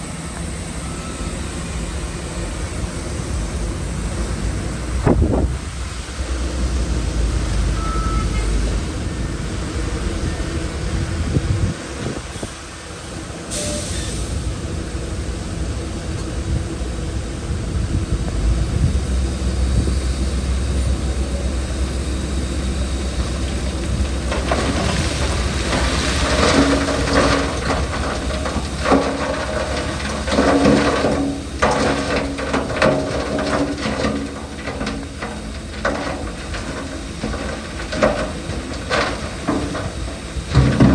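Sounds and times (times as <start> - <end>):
heavy diesel machinery rumble: 0.0 - 40.9
rock and dirt clattering: 22.6 - 40.9.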